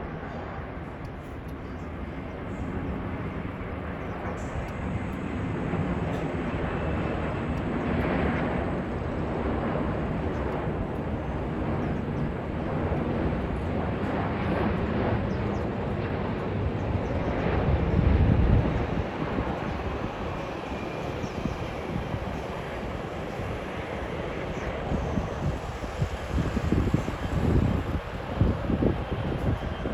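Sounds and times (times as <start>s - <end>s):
jet engine rumble: 0.0s - 29.9s.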